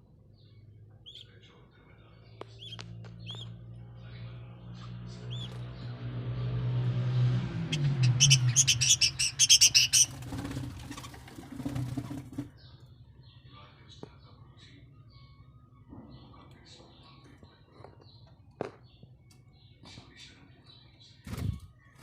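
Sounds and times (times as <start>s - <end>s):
budgerigars chirping: 0.4s - 5.7s, 7.6s - 13.4s.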